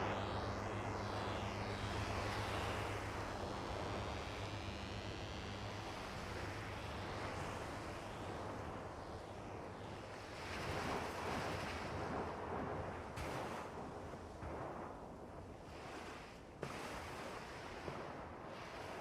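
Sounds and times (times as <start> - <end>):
low synth drone: 0.0 - 9.5.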